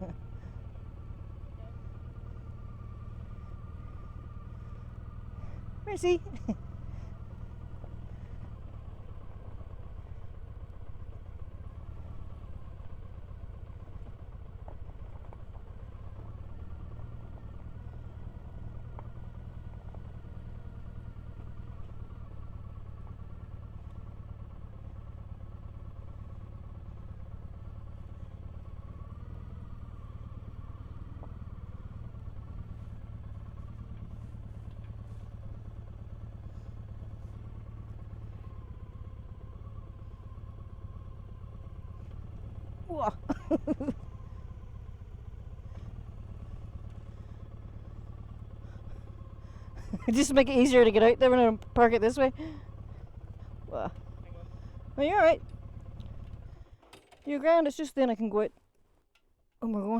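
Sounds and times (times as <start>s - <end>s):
motorcycle engine running slowly: 0.0s - 59.9s.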